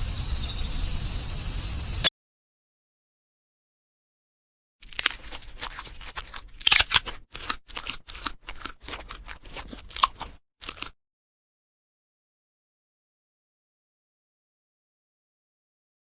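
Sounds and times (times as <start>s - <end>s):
pet chewing crunchy food: 4.8s - 11.0s.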